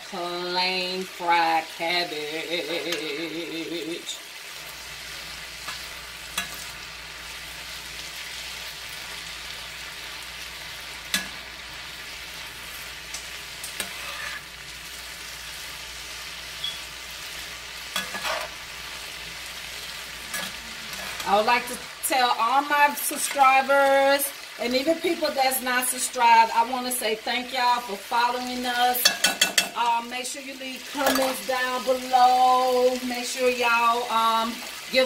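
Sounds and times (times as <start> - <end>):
cabbage sizzling in a skillet: 0.0 - 35.0
metal spoon clacking on pan: 6.4 - 6.6, 11.1 - 11.4, 17.9 - 18.4, 20.3 - 20.6, 29.0 - 29.8.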